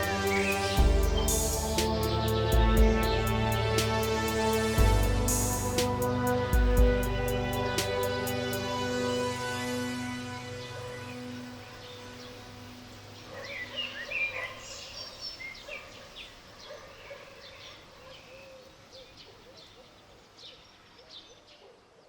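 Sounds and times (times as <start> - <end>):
soft background music: 0.0 - 14.6
birds chirping: 0.0 - 21.9.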